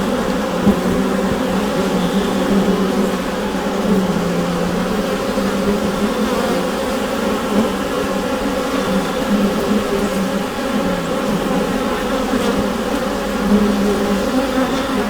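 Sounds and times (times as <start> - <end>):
honeybees humming in hive: 0.0 - 15.0.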